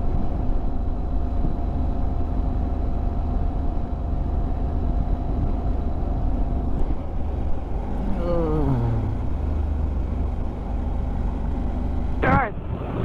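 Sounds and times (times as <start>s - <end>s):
motorcycle engine drone: 0.0s - 13.0s.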